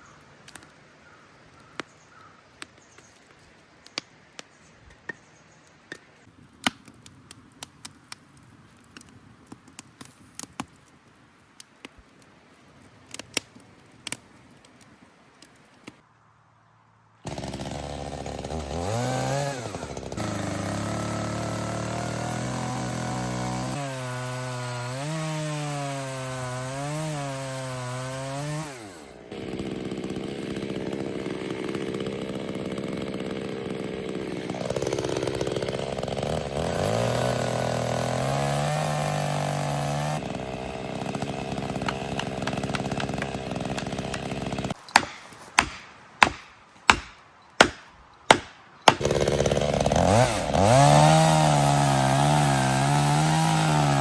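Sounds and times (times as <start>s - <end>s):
chainsaw cutting wood: 17.2s - 54.0s
sharp knocks: 44.9s - 49.0s.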